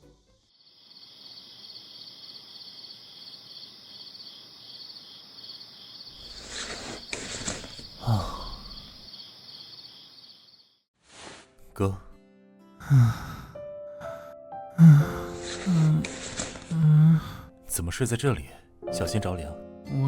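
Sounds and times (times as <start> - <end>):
crickets chirring: 0.5 - 10.8
rustling: 6.2 - 8.0.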